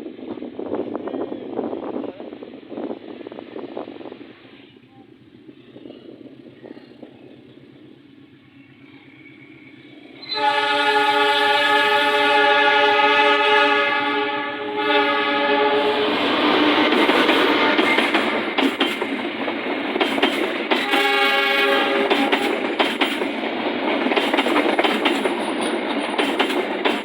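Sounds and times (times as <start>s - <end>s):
train running past: 0.0s - 27.0s
train horn blast: 10.2s - 18.4s, 20.8s - 22.6s.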